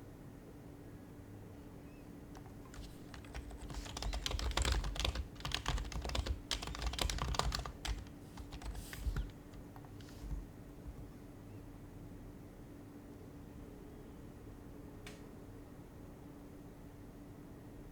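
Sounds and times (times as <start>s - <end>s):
typing on a keyboard: 2.4s - 11.1s.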